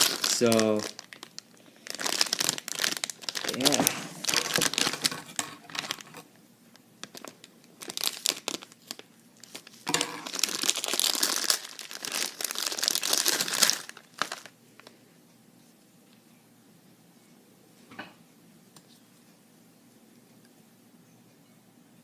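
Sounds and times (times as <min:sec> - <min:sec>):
plastic packaging crinkling and tearing: 0:00.0 - 0:15.0.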